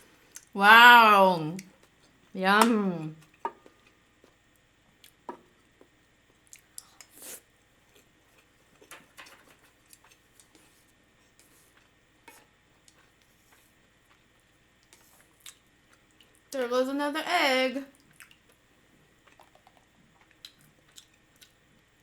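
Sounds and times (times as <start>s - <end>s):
person chewing: 19.2s - 21.6s.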